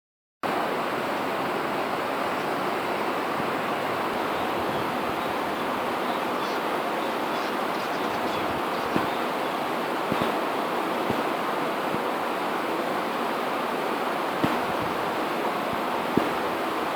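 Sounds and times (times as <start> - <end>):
steady rushing noise: 7.7 - 16.9.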